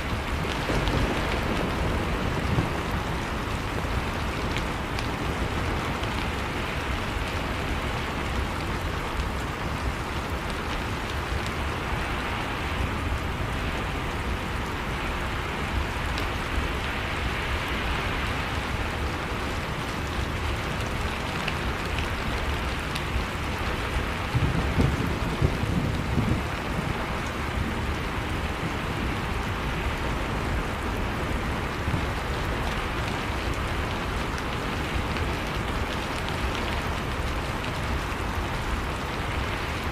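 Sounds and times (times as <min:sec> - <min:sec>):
heavy rain: 0:00.0 - 0:39.9
thunder rumble: 0:00.1 - 0:06.3, 0:23.8 - 0:29.5.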